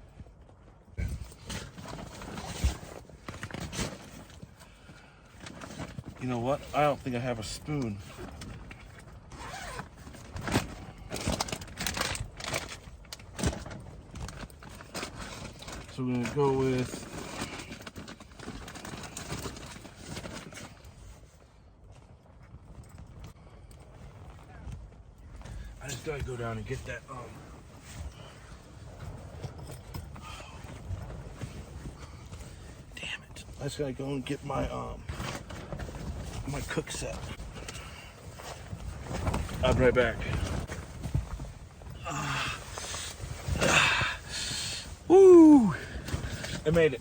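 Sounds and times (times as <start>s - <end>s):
rustling: 0.5s - 47.0s
clicks and knocks of gear: 7.6s - 26.9s, 27.7s - 33.6s.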